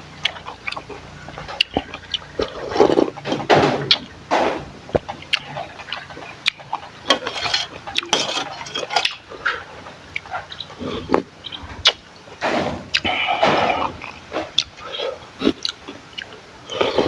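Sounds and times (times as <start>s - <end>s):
utensils clinking against bowls: 5.0s - 10.6s.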